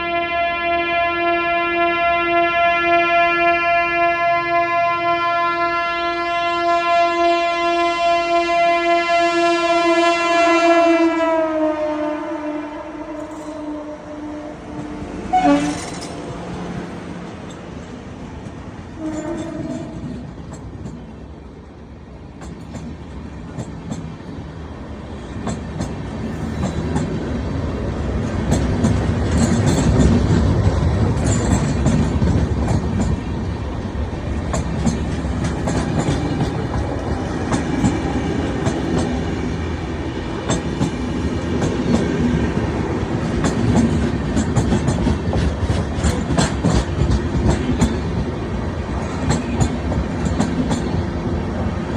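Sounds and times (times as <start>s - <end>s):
train wheels clattering over rails: 14.6s - 21.6s, 22.2s - 51.9s.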